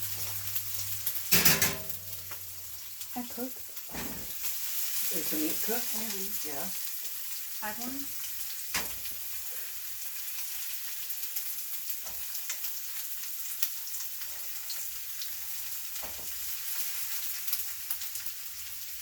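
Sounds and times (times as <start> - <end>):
stir fry sizzling in a pan: 0.0 - 19.0
utensil knocking against pan: 1.3 - 2.0.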